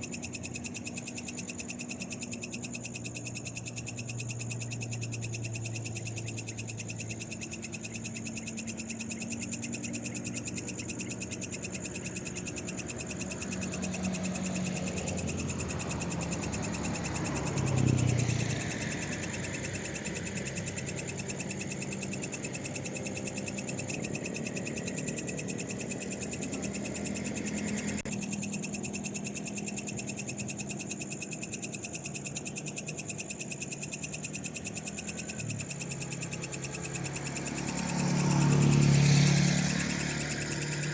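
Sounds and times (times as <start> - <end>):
frogs calling: 0.0 - 40.9
insects calling: 0.0 - 40.9
vehicle passing: 11.8 - 28.1, 35.1 - 40.9.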